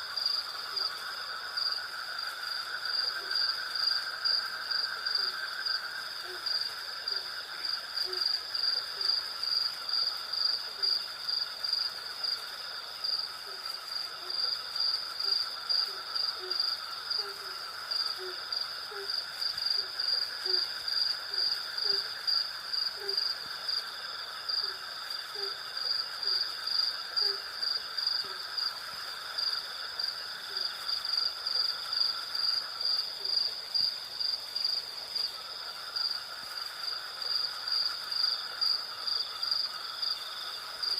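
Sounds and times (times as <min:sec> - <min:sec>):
crickets chirping: 0:00.0 - 0:40.9
insect trills: 0:00.0 - 0:40.9.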